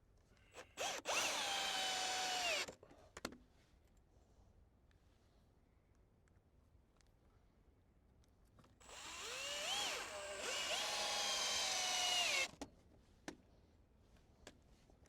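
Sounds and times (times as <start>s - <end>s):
electric drill whining: 0.8s - 2.7s, 8.8s - 12.5s.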